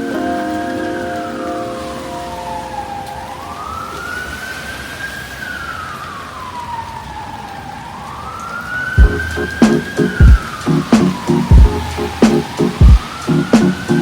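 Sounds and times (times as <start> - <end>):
emergency vehicle siren wailing: 0.0 - 14.0
low loud thumps: 9.0 - 14.0
steady hiss: 9.0 - 14.0.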